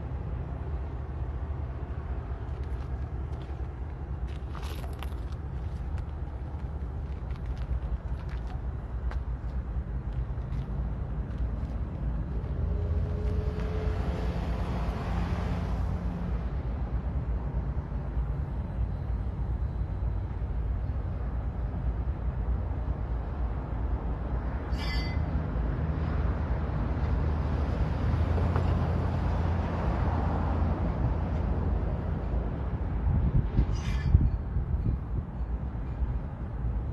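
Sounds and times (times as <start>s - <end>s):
diesel engines running: 0.0s - 36.9s
sharp metallic clank: 24.7s - 25.3s.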